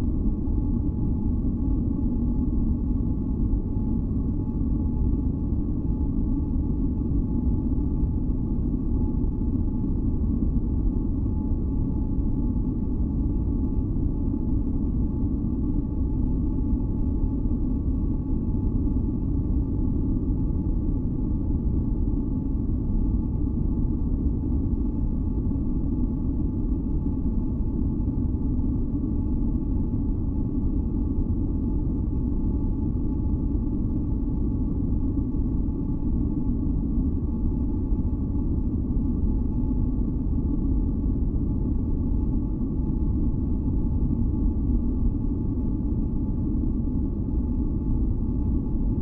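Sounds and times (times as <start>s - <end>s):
faint steady humming tones: 0.0s - 49.0s.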